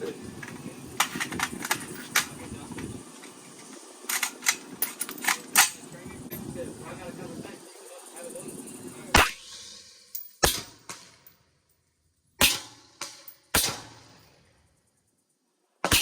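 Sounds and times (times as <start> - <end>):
loud gunshots with echo: 9.2 - 11.2, 12.4 - 14.2.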